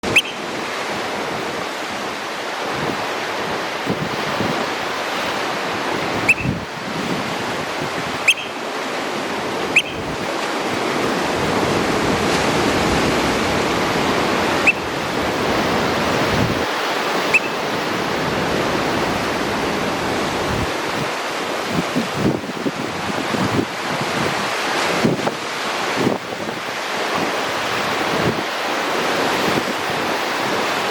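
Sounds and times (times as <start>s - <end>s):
oystercatcher shrill calls: 0.0s - 0.4s, 6.2s - 6.7s, 8.2s - 8.6s, 9.8s - 10.2s, 14.6s - 14.9s, 17.3s - 17.7s
surf washing over rocks: 0.0s - 30.9s.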